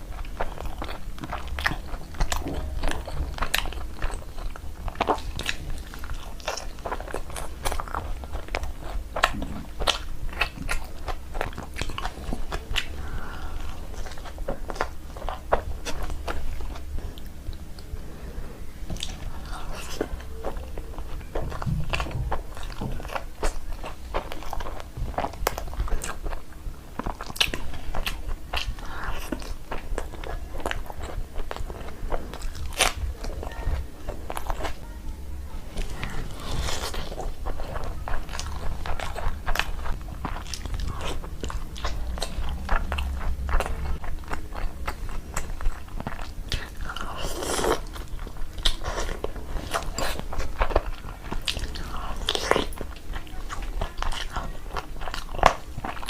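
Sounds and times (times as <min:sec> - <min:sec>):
person chewing food: 0:00.0 - 0:34.9, 0:35.6 - 0:56.0
mouth clicks and crunches: 0:35.8 - 0:56.0.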